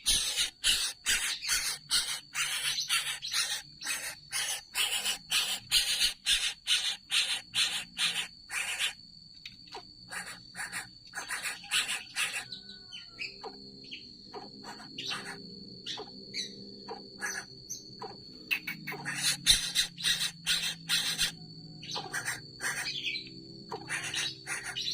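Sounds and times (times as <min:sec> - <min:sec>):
coucal harsh calls: 0:10.1 - 0:12.9, 0:22.0 - 0:23.0, 0:23.7 - 0:24.9.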